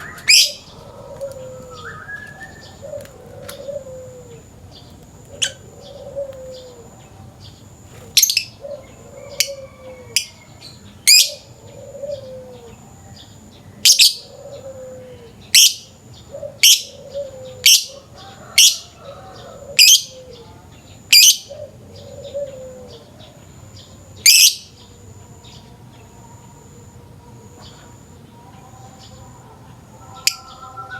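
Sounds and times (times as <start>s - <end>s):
low falling coo: 0.0s - 4.5s, 5.2s - 7.0s, 8.6s - 10.4s, 11.2s - 12.8s, 14.2s - 15.4s, 16.3s - 20.7s, 21.5s - 23.3s.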